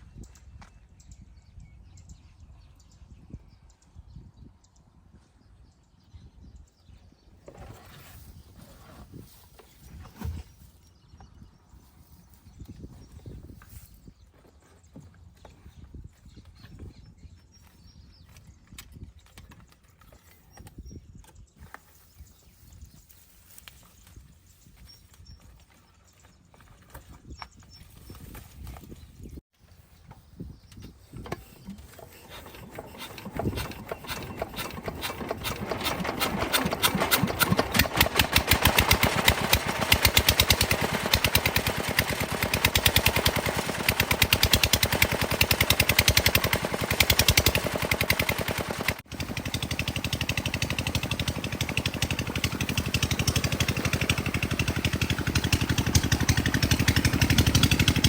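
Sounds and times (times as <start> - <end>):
water pump engine putt-putt: 31.2 - 58.0.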